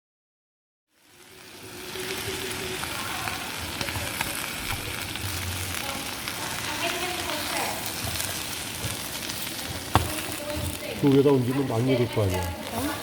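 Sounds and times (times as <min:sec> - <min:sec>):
food sizzling over fire: 0:00.9 - 0:13.0.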